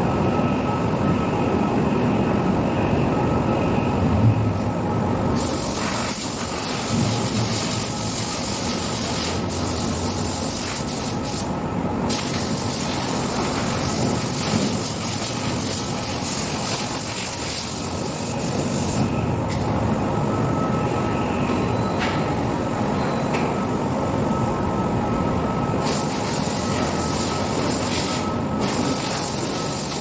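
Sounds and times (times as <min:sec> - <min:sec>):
low machine hum: 0:00.0 - 0:30.0
high-pressure spray hissing: 0:05.4 - 0:11.5, 0:25.8 - 0:30.0.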